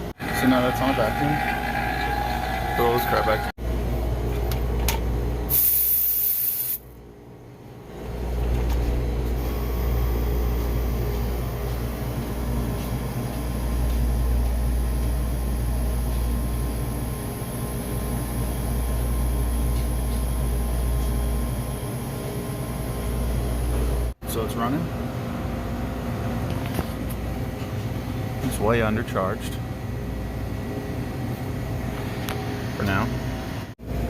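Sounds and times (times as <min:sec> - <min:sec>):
low mechanical hum: 0:00.0 - 0:05.6, 0:06.8 - 0:34.0
gas hissing: 0:05.5 - 0:06.8.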